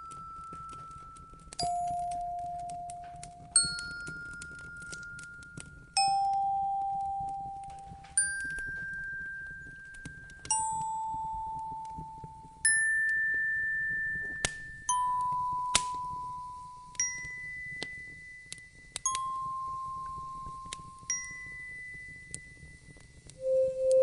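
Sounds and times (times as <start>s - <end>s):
slow ringing chime notes: 0.0s - 24.0s
wood fire crackling: 0.0s - 24.0s.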